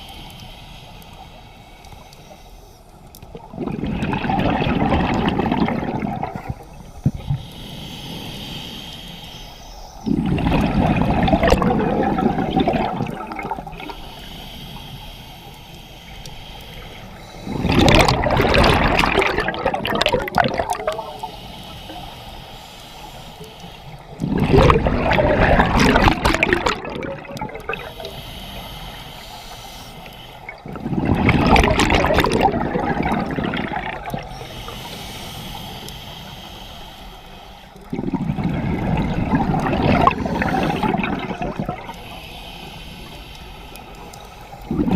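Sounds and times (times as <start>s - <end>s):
regulator inhalation hiss: 0.0s - 3.1s, 6.5s - 10.2s, 13.5s - 17.8s, 20.7s - 24.2s, 27.6s - 30.6s, 34.0s - 37.9s, 41.6s - 44.7s
bubbling diver exhalations: 3.5s - 6.6s, 10.0s - 14.0s, 17.4s - 21.1s, 24.2s - 28.0s, 30.6s - 34.4s, 37.9s - 42.0s, 44.7s - 44.9s.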